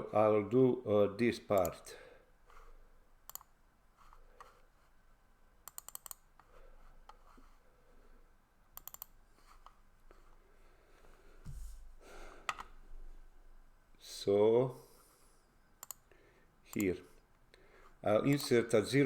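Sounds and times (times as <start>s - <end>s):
mouse and keyboard clicks: 3.3s - 3.5s, 5.7s - 6.5s, 8.8s - 9.8s, 15.8s - 16.0s.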